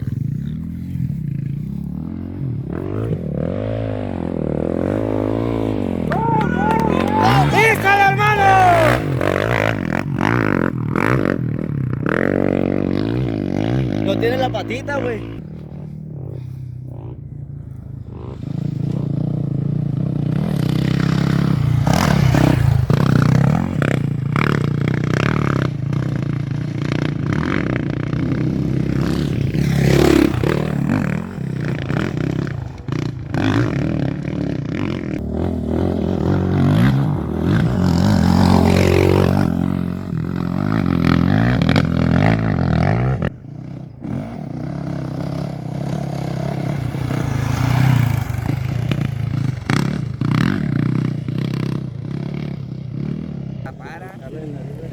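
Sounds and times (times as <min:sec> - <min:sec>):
motorcycle engines revving past: 0:00.0 - 0:54.9.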